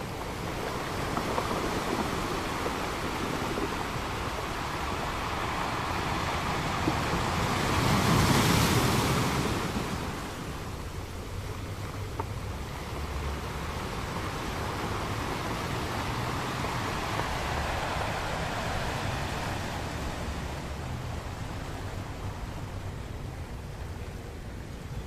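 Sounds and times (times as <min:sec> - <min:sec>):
ocean surf washing onto beach: 0:00.0 - 0:25.0.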